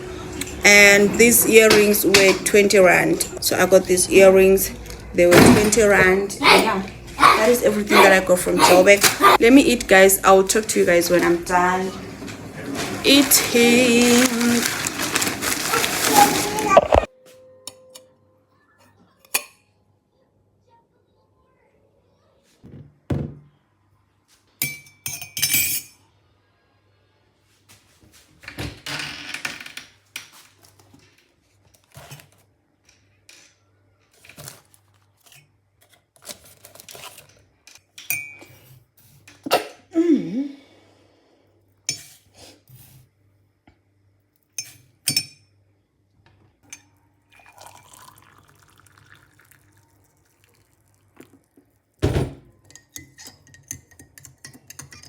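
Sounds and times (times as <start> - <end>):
cutlery clinking on a plate: 52.6 - 55.0.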